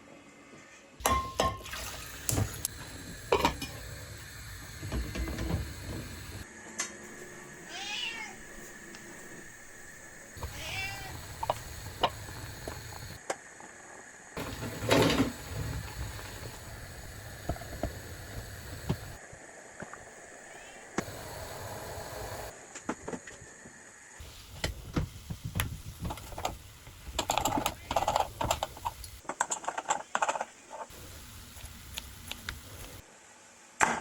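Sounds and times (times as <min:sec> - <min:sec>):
utensils and dishes clinking: 0:01.0 - 0:02.5.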